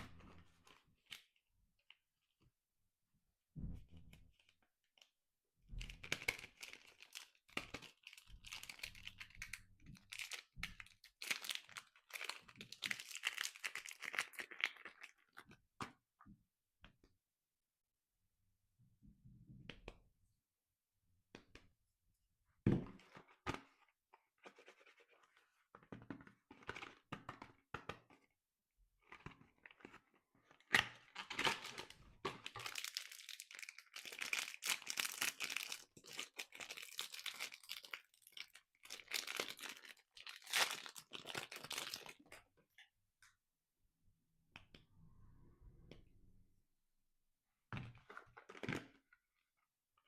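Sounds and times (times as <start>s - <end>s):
wrapper tearing and crinkling: 31.2s - 42.2s.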